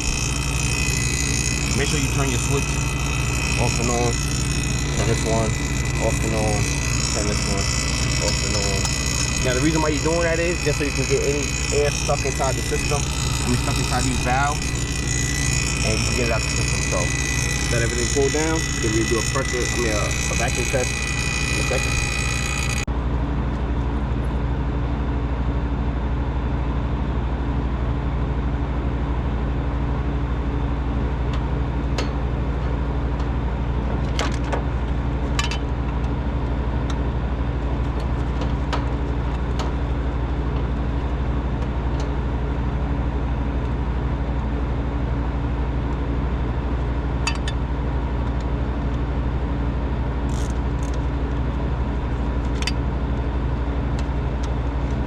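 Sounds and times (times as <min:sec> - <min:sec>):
vacuum pump motor humming: 0:00.0 - 0:22.9, 0:45.8 - 0:55.0.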